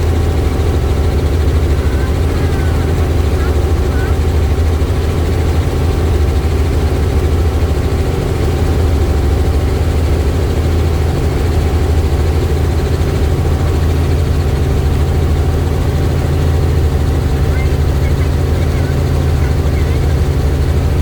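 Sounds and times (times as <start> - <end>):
helicopter rotor and turbine: 0.0 - 21.0.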